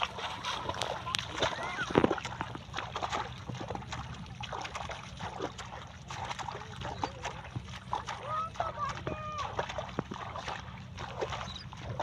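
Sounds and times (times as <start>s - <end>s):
pond water splashing: 0.0s - 12.0s.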